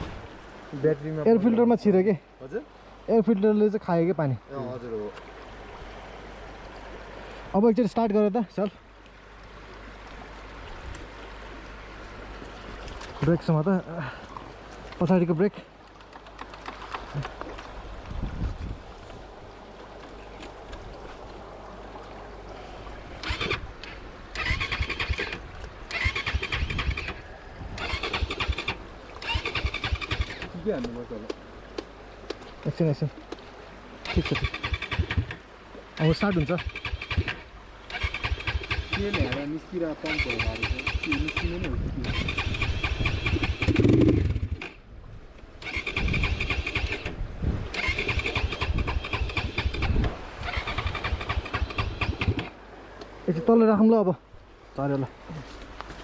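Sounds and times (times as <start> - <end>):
dirt bike engine cranking: 23.2 - 27.2, 27.8 - 30.6, 34.0 - 35.4, 36.0 - 44.8, 45.6 - 52.5.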